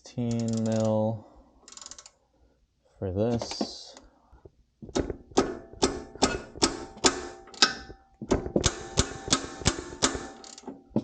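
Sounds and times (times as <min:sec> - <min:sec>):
ratchet wrench clicking: 0:00.3 - 0:01.0, 0:01.7 - 0:02.1, 0:08.7 - 0:10.7.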